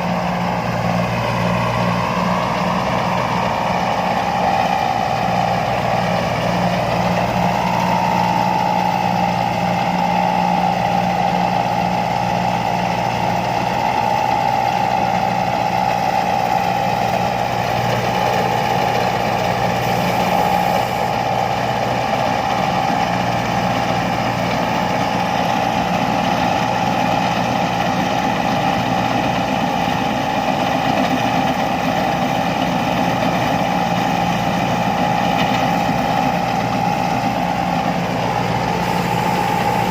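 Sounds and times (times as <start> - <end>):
diesel engine running: 0.0 - 39.9
high whine: 36.5 - 39.9.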